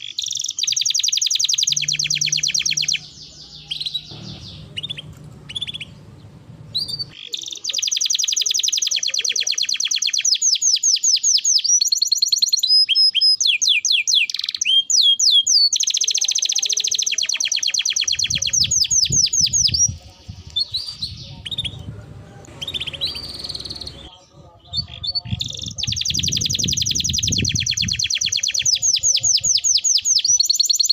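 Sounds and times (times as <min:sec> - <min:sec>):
canary short chirps: 0:00.0 - 0:06.0, 0:06.7 - 0:19.9, 0:22.6 - 0:24.1
canary singing trills: 0:00.0 - 0:30.9.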